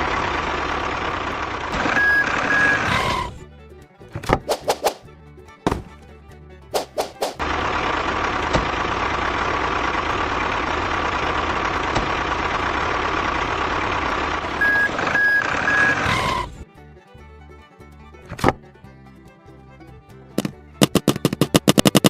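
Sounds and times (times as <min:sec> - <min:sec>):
truck engine running: 0:00.0 - 0:22.0
short reversing beeps: 0:01.8 - 0:03.0, 0:14.6 - 0:16.1.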